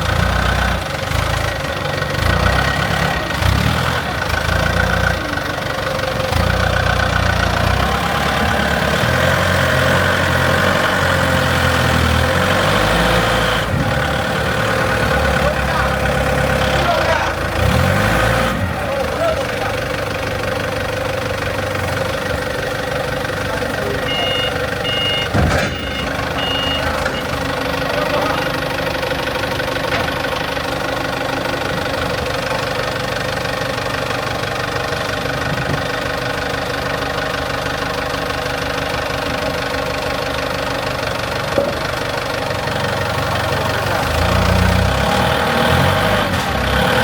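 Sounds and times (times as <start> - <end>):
excavator engine idling: 0.0 - 47.0
short high beeps: 24.0 - 27.4.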